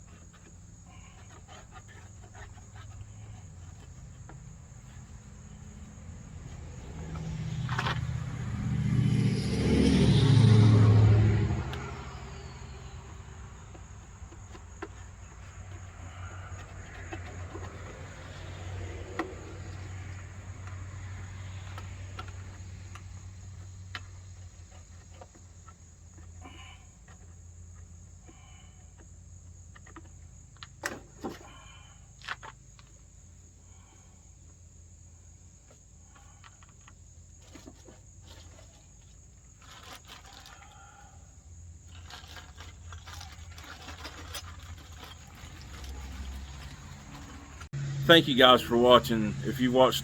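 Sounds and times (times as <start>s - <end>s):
string trimmer engine idling: 41.8s - 50.0s.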